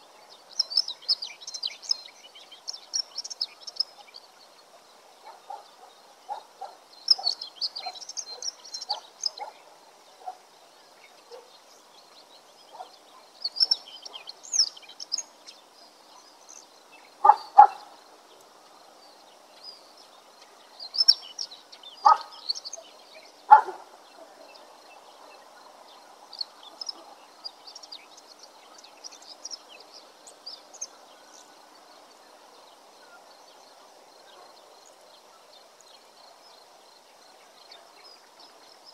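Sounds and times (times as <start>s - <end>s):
sharp bird calls: 0.0s - 18.0s, 20.8s - 25.6s
songbirds chirping: 0.0s - 38.9s.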